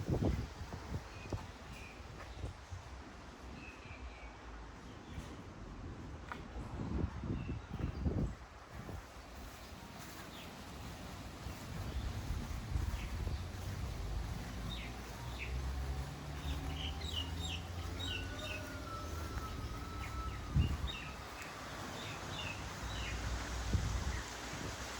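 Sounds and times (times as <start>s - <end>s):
birds chirping: 9.2s - 24.5s.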